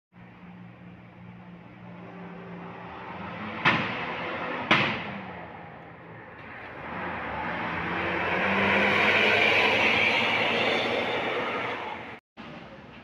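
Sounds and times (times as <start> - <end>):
bus engine humming: 0.2 - 3.5
rush of passing vehicle: 1.1 - 12.2.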